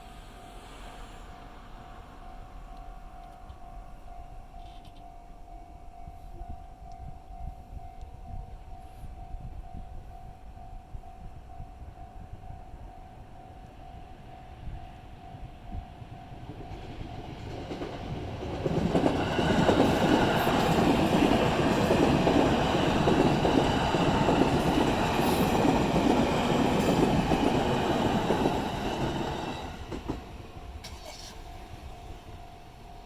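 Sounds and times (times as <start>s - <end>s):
train wheels rumbling on rails: 15.3s - 33.0s.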